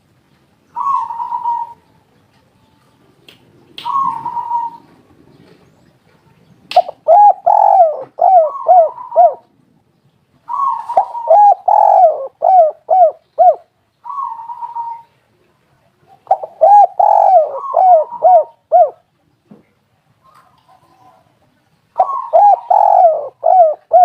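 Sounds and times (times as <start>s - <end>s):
dove cooing: 0.7s - 1.8s, 3.8s - 5.6s, 6.7s - 9.5s, 10.5s - 15.2s, 16.1s - 19.1s, 22.0s - 24.0s.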